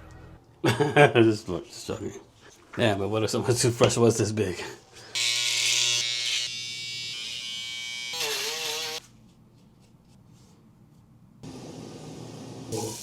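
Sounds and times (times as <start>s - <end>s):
small electric motor buzzing: 5.1s - 9.0s.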